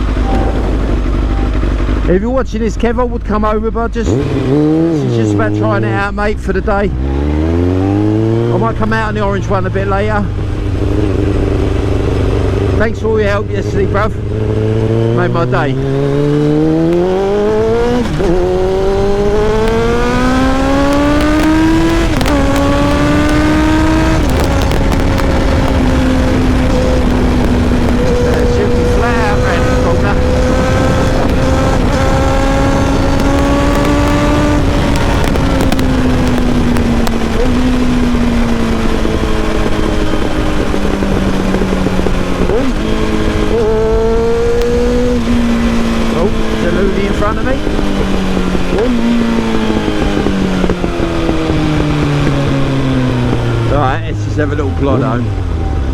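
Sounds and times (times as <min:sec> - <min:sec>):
motorcycle engine accelerating: 0:00.0 - 0:55.9
wind rush: 0:16.5 - 0:53.7.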